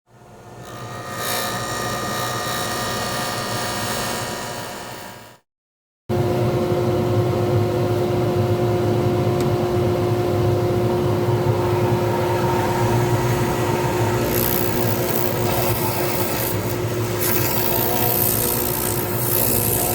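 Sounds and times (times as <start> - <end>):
lathe motor hum and whine: 6.2 - 19.9
turning tool scraping hiss: 13.9 - 19.9.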